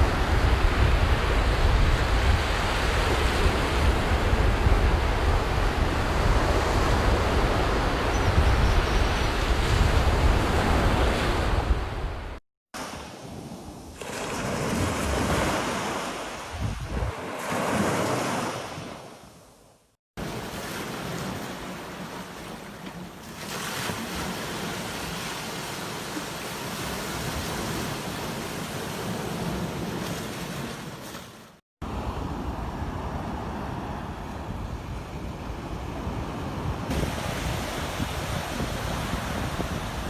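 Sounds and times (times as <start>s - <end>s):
ocean surf washing onto beach: 0.0s - 8.2s, 20.2s - 40.0s
wind on microphone: 0.0s - 12.4s, 16.5s - 17.2s, 31.9s - 40.0s.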